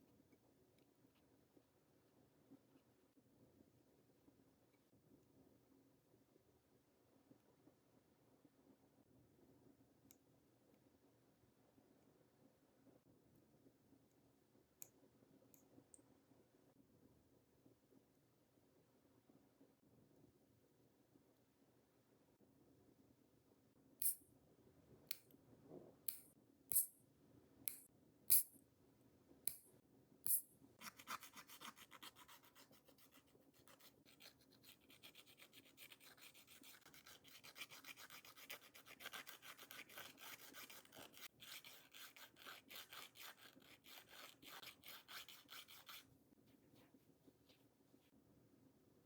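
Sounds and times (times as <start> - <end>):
nail file rasping on fingernails: 30.3 - 46.1.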